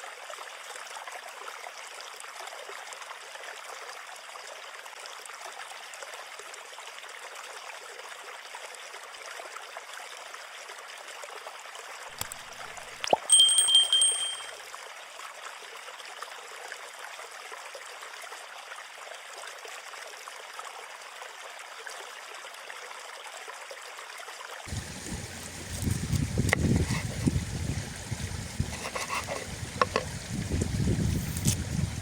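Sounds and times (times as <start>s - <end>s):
water running and trickling: 22.6s - 32.0s
sharp clicks and knocks: 28.7s - 30.1s.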